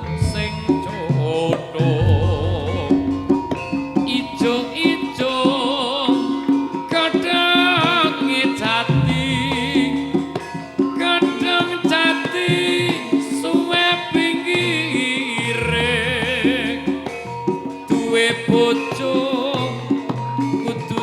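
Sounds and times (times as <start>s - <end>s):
gamelan music: 0.0s - 21.0s
hand-drum strokes: 0.0s - 21.0s
deep low gong notes: 2.0s - 6.1s.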